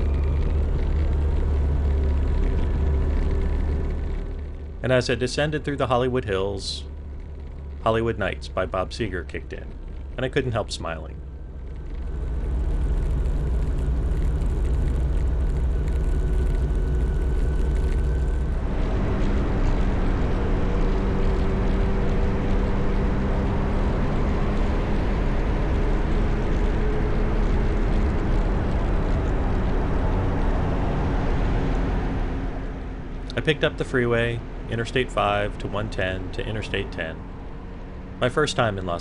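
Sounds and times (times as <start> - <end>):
road noise: 0.0 - 39.0
motorcycle engine running: 11.2 - 38.2.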